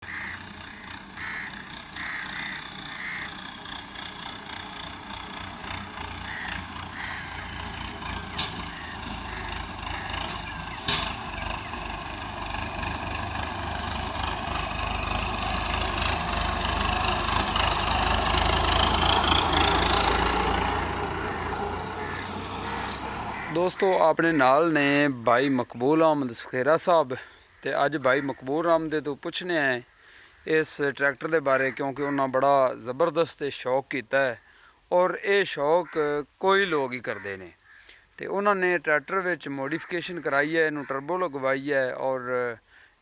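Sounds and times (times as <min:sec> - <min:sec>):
tractor diesel engine running: 0:00.0 - 0:27.1
rising engine whine: 0:00.3 - 0:23.6.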